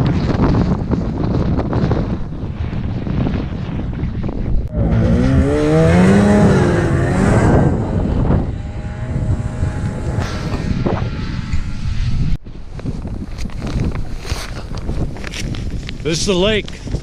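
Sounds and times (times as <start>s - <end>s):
wind buffeting microphone: 0.0s - 17.0s
snowmobile engine: 4.6s - 15.5s.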